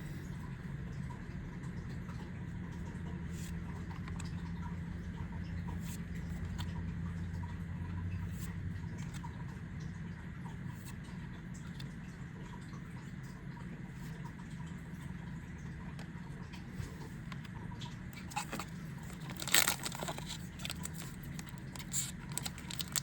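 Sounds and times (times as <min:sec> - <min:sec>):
steady low hum: 0:00.0 - 0:23.0
cards and foil packs rustling: 0:18.2 - 0:23.0.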